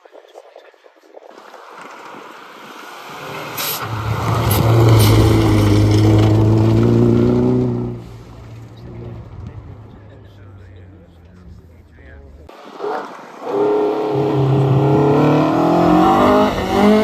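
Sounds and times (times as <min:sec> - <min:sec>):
sharp cracks: 0:01.4 - 0:10.1
rally car engine passing at speed: 0:01.4 - 0:11.6, 0:12.2 - 0:17.0.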